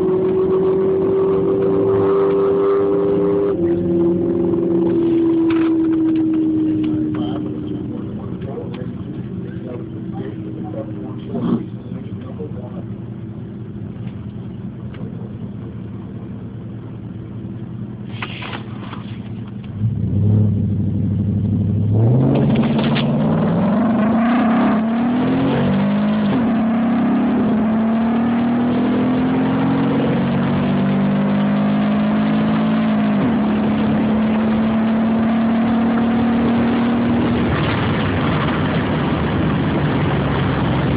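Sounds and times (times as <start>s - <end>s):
vehext engine accelerating: 19.6s - 40.9s.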